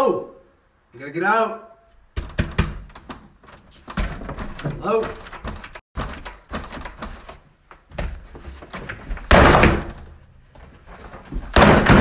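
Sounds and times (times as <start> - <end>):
knocks on door: 2.2 - 2.9
door slamming: 2.2 - 3.2, 3.9 - 7.2, 9.0 - 10.2, 11.3 - 12.0.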